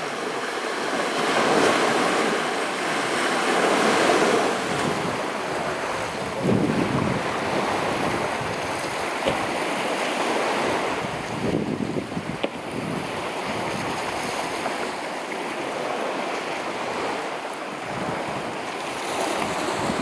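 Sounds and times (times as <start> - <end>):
sea waves washing onto shore: 0.0 - 20.0
wind buffeting microphone: 4.5 - 14.7, 17.8 - 20.0.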